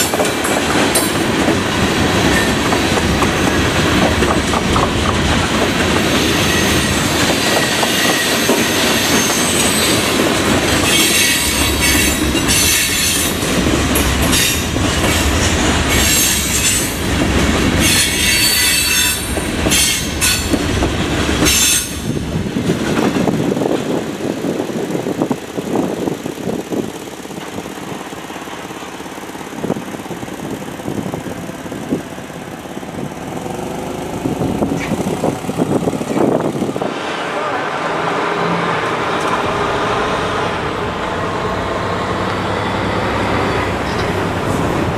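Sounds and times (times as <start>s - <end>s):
train cars rolling and clacking: 0.0s - 44.9s
train wheels squealing: 6.1s - 13.4s, 17.8s - 20.6s, 21.4s - 22.1s.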